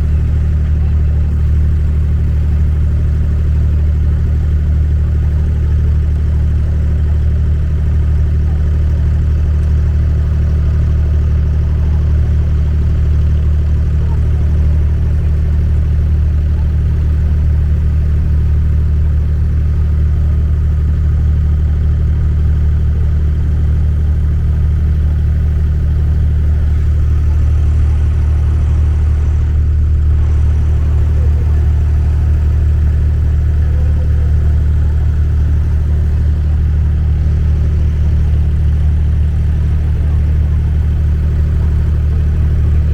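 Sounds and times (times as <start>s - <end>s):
boat engine droning: 0.0s - 42.9s.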